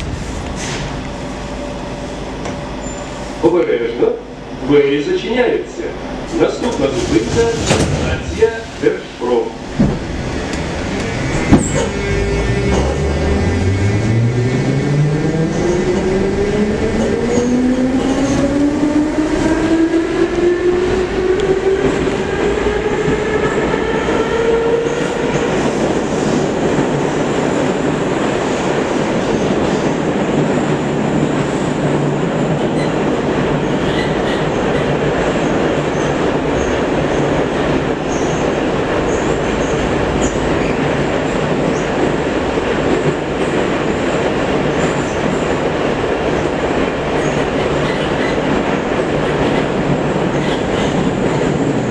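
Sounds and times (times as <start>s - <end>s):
train wheels rumbling on track: 0.0s - 51.9s
train motors whining: 9.6s - 25.5s.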